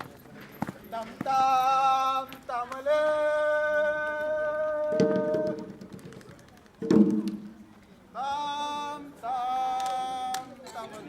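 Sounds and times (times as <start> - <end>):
person singing long notes: 1.8 - 5.7
drum strikes: 4.9 - 6.0, 6.8 - 7.6.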